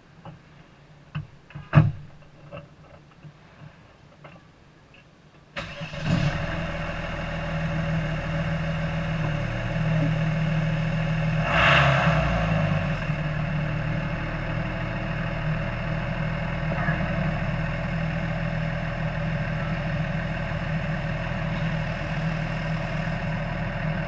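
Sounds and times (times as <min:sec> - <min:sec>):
car engine starting and idling: 0:05.6 - 0:24.0.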